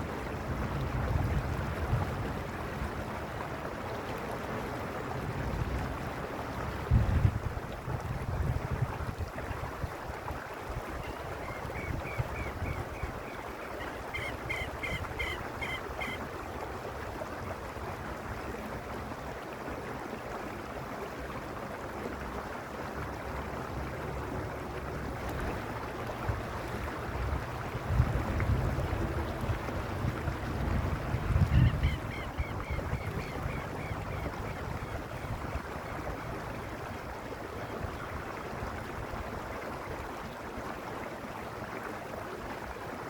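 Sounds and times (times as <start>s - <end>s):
wind buffeting microphone: 0.0s - 3.0s, 5.2s - 16.2s, 23.7s - 37.2s
creek water rushing over stones: 0.0s - 43.0s.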